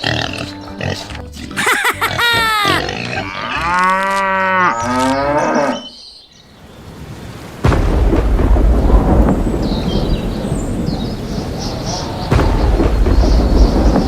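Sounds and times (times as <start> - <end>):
cattle mooing: 0.0 - 5.9
loud low rumble: 7.7 - 14.0.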